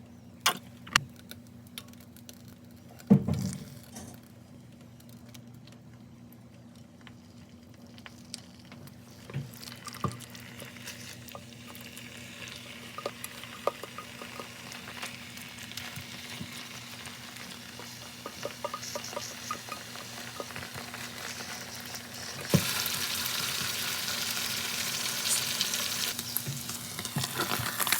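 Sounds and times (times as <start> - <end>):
food sizzling in a frying pan: 7.9 - 27.9.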